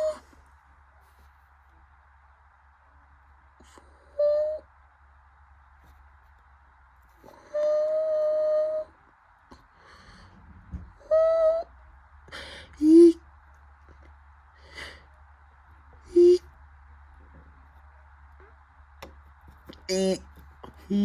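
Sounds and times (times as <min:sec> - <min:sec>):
hoot-like calls: 0:00.0 - 0:00.4, 0:04.0 - 0:04.7, 0:07.3 - 0:09.0, 0:11.0 - 0:11.7, 0:16.0 - 0:16.5
washing machine spin hum: 0:00.0 - 0:21.0.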